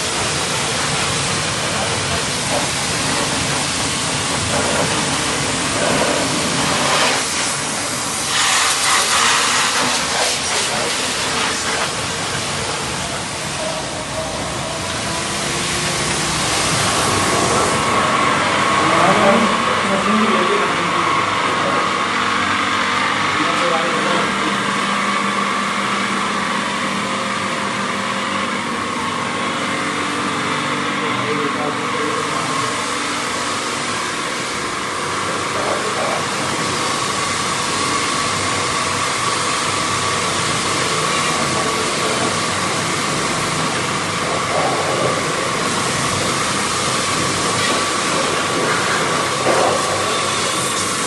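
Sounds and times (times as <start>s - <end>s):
pressure washer spraying water: 0.0s - 20.6s, 32.0s - 51.0s.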